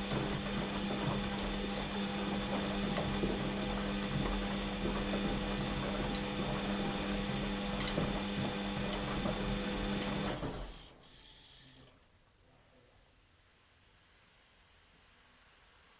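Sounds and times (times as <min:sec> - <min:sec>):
washing machine motor hum: 0:00.0 - 0:11.3.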